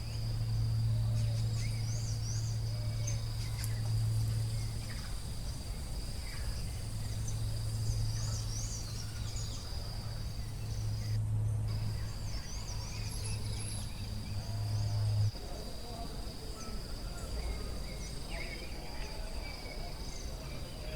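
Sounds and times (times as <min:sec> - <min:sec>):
insect high-pitched trill: 0:00.0 - 0:11.1
steady low hum: 0:00.0 - 0:20.9.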